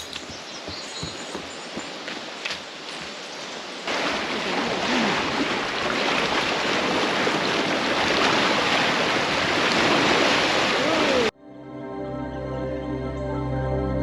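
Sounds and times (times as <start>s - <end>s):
water rushing over rapids: 1.0s - 11.3s.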